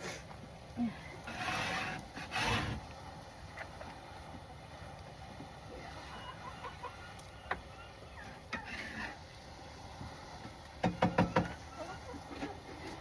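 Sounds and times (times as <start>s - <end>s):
sharp knocks on wood: 10.8s - 11.5s.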